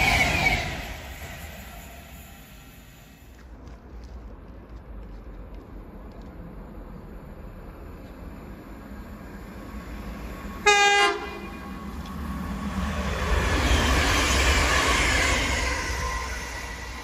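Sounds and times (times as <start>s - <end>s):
train wheels on rail passing: 0.0s - 17.0s
train horn blast: 10.6s - 11.7s.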